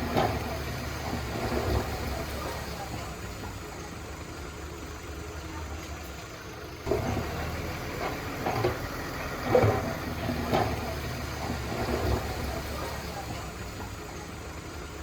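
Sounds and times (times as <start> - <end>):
heavy machinery diesel engine: 0.0 - 15.0
loud clunks: 8.0 - 13.5.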